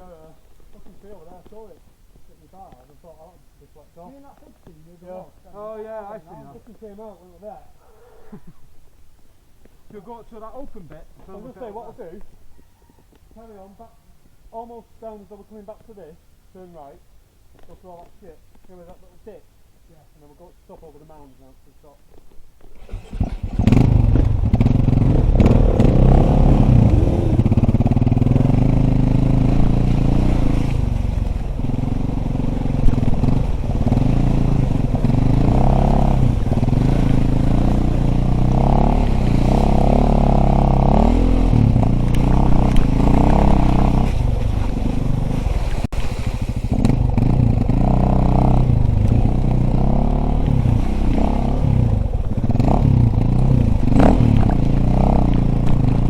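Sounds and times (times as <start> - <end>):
bike clattering over rough ground: 22.1 - 41.0, 41.6 - 56.0
dirt bike engine revving: 22.7 - 56.0.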